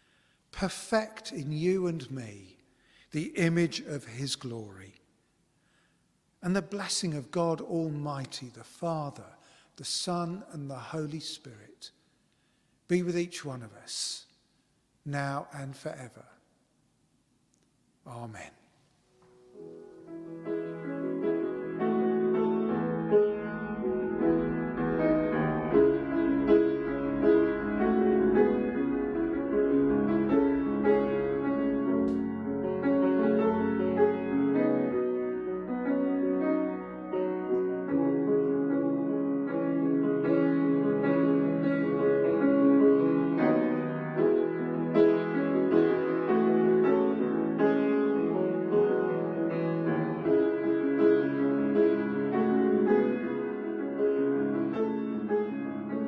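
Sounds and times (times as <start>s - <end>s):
solo keyboard music: 19.5s - 56.0s.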